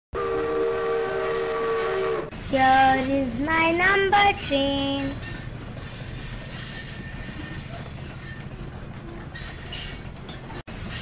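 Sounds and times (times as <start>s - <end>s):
train rumbling on rails: 2.2s - 11.0s.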